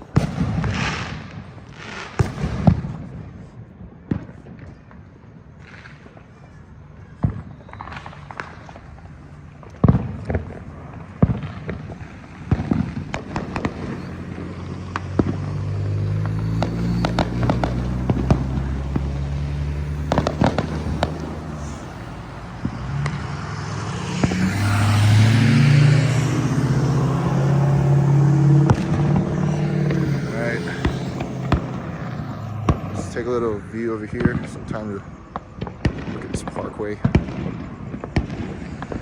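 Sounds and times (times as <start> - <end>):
fireworks and firecrackers banging: 0.0 - 39.0
vehicle engine humming: 6.7 - 36.6.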